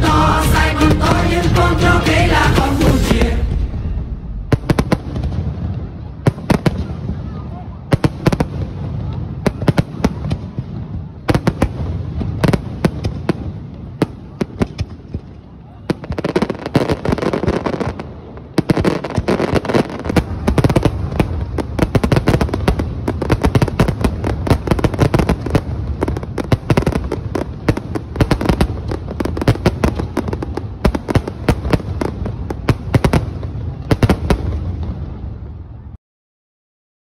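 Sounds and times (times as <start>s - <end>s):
low rumble: 0.0s - 6.0s
fireworks bangs and crackling: 0.0s - 35.9s.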